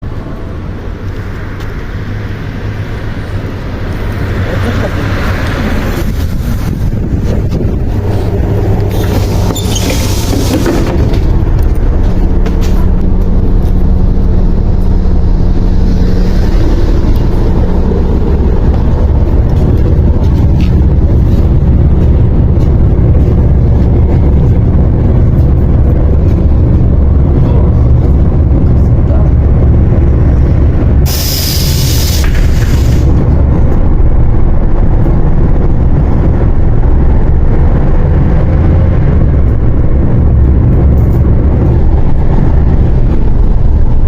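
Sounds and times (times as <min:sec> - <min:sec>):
bus engine humming: 0:00.0 - 0:44.0
road noise: 0:00.0 - 0:44.0
air hiss bursts: 0:31.1 - 0:33.1.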